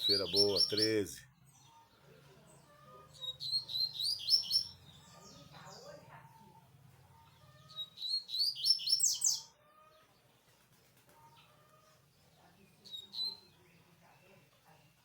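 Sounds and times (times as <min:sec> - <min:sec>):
bird singing rapid high notes: 0:00.0 - 0:01.2.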